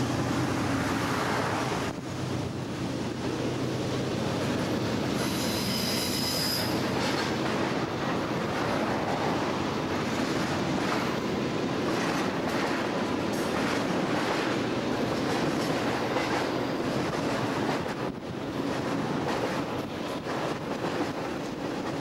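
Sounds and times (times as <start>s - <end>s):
freight train wheels rumbling: 0.0s - 22.0s
high-pitched wheel squeal: 5.2s - 6.8s.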